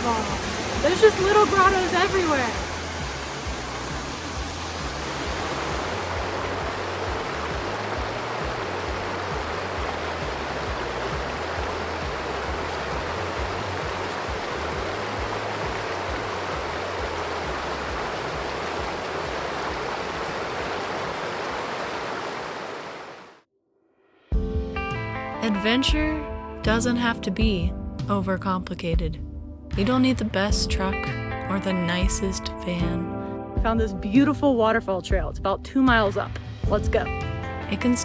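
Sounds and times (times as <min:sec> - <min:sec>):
waterfall splashing into pool: 0:00.0 - 0:23.4.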